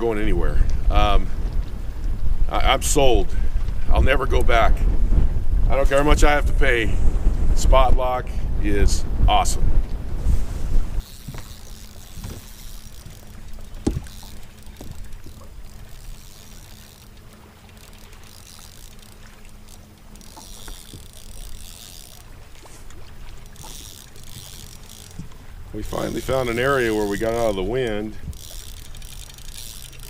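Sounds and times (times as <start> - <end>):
steady low hum: 0.0 - 30.0
water lapping against hull: 0.0 - 30.0
sharp knocks: 13.8 - 14.2.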